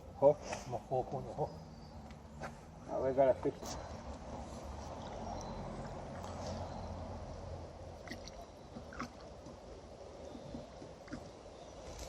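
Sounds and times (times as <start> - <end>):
water gurgling and sloshing: 3.8 - 12.0.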